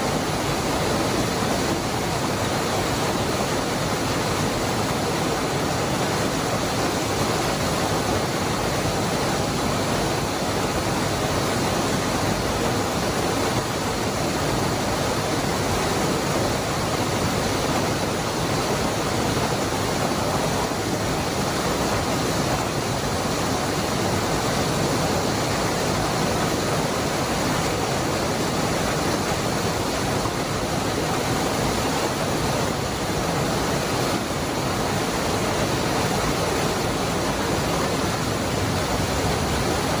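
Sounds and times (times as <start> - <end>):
waterfall splashing: 0.0 - 40.0.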